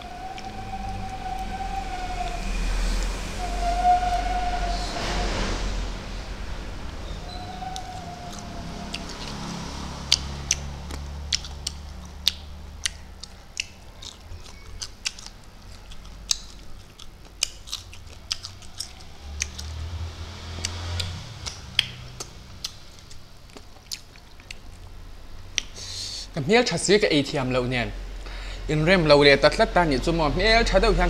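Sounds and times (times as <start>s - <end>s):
man chewing crunchy food: 10.1s - 19.8s, 20.6s - 25.0s
mouth smacks: 25.6s - 26.2s.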